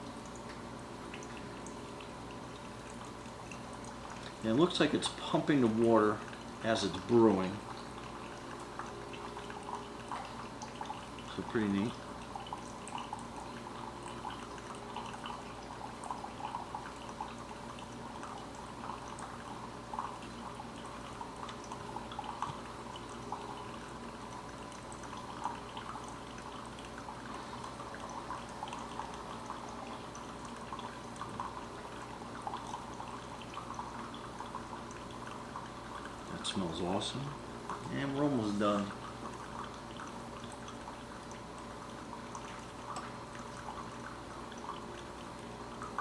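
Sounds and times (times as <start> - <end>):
coffee trickling and dripping: 0.0 - 46.0
water pump humming: 0.0 - 46.0.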